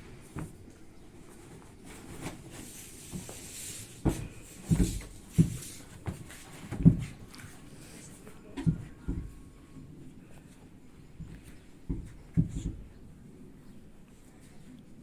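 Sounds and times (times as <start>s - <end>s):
scraping rustle: 0.0s - 9.4s
wooden knocks on sofa frame: 4.0s - 7.3s, 8.6s - 9.4s, 11.2s - 12.9s.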